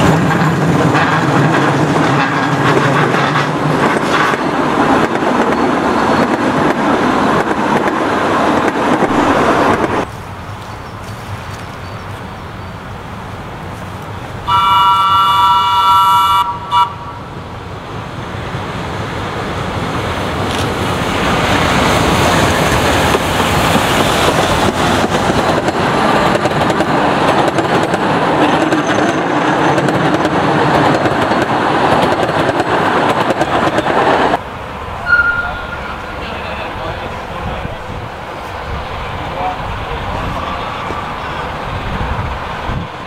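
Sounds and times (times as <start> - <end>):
train wheels on rails: 0.0 - 43.0
train horn: 14.4 - 17.2, 35.0 - 36.4.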